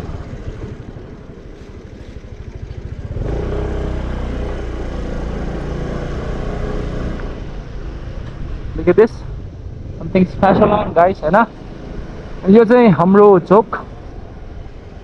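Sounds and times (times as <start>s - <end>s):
scooter engine: 0.0s - 8.7s.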